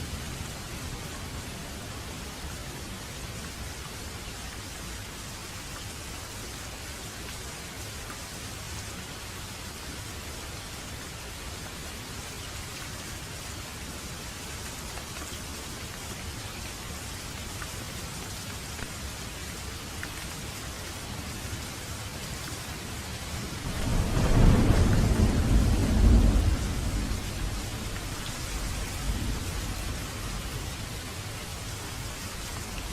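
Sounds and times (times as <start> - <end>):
steady rain: 0.0 - 32.9
rolling thunder: 23.6 - 30.8.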